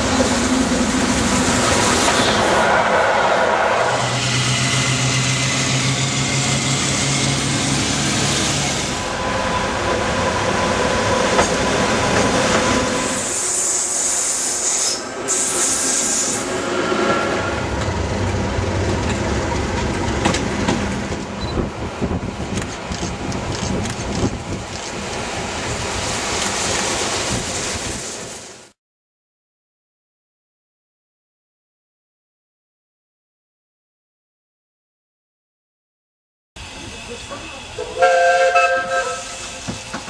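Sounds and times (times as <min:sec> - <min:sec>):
train carriages rumbling on rails: 0:00.0 - 0:28.5, 0:36.6 - 0:40.0
diesel locomotive engine: 0:00.0 - 0:28.7, 0:36.6 - 0:40.0
loud high hiss: 0:12.9 - 0:16.7, 0:36.6 - 0:40.0.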